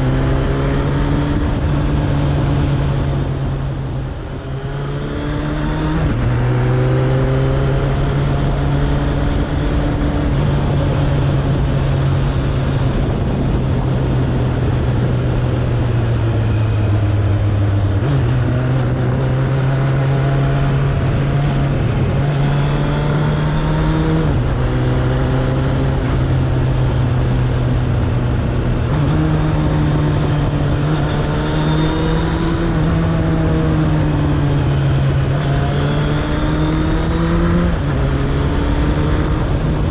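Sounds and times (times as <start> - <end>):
motorcycle engine running: 0.0 - 19.7
wind noise: 0.0 - 39.9.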